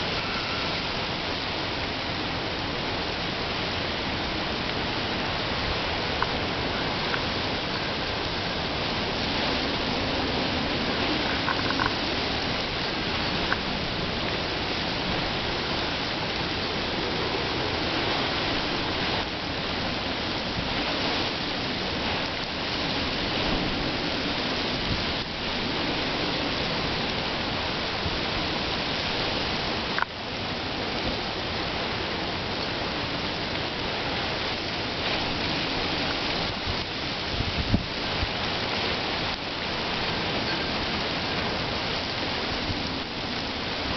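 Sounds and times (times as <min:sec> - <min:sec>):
heavy rain and wind: 0:00.0 - 0:43.9.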